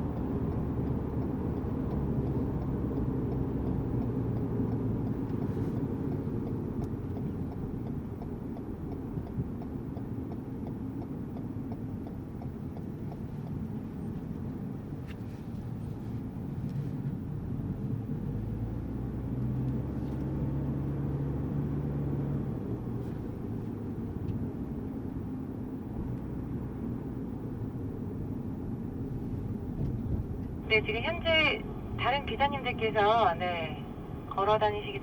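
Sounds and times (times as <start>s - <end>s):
car engine and road rumble: 0.0s - 35.0s
turn signal ticking: 0.0s - 35.0s.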